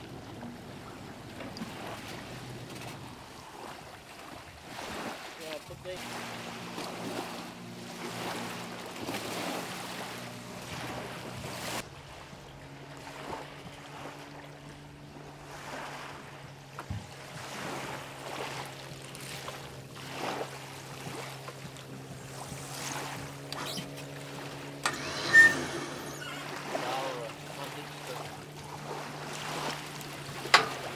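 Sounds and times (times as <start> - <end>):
low motor hum: 0.0 - 4.9, 5.9 - 30.9
small waves washing on shore: 0.0 - 30.9.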